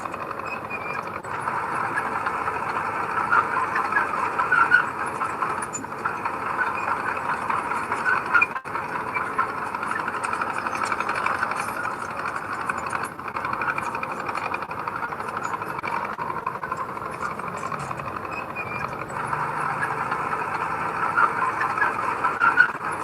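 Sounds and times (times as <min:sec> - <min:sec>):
bulldozer engine running: 0:00.0 - 0:23.0
steel tracks squealing and clanking: 0:00.0 - 0:23.0.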